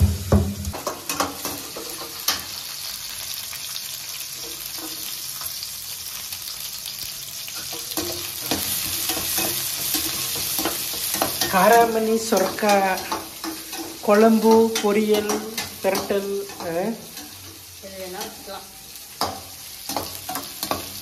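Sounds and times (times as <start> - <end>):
onions sizzling in hot oil: 0.0 - 21.0
metal spatula stirring: 7.6 - 17.6, 18.2 - 21.0.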